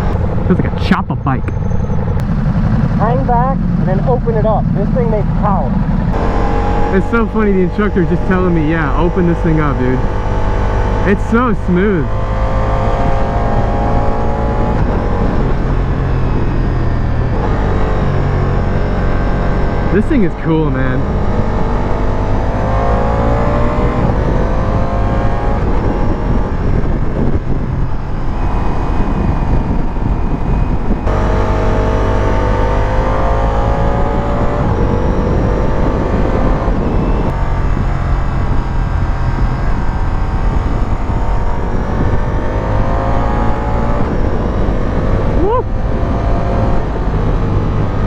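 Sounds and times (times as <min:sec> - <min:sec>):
motorcycle engine revving: 0:01.5 - 0:48.0
wind rush: 0:21.3 - 0:31.1, 0:33.0 - 0:48.0.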